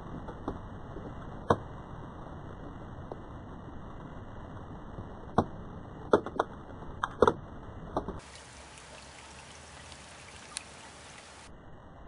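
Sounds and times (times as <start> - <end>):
heavy raindrops tapping: 8.2 - 11.5
rain falling: 8.2 - 11.5.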